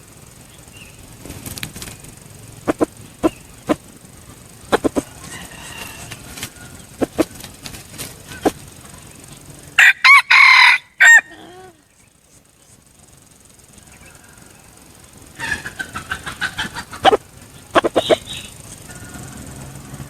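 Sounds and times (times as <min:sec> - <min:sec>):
sharp clicks: 0:00.0 - 0:09.8
rooster crowing: 0:04.8 - 0:07.5, 0:09.6 - 0:11.9, 0:13.8 - 0:17.2, 0:17.8 - 0:20.0.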